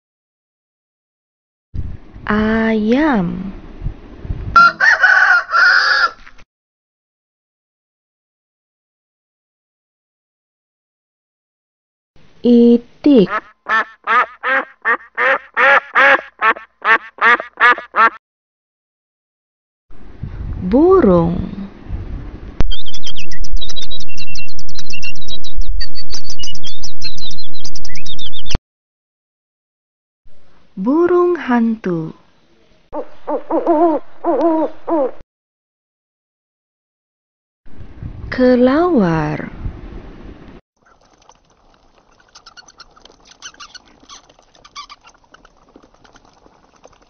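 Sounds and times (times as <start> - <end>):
birds chirping: 22.7 - 25.4, 26.0 - 28.6, 42.0 - 47.0
bats squeaking and chattering: 40.9 - 47.0.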